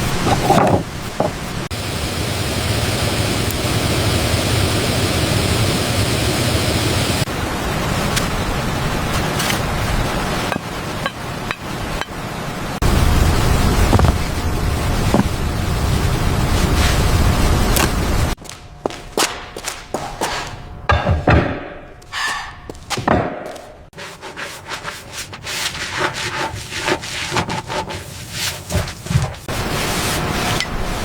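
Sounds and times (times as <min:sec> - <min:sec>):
scraping and knocking on wood: 0:00.1 - 0:01.5, 0:13.9 - 0:14.2, 0:18.9 - 0:30.8
wind noise: 0:03.1 - 0:18.4.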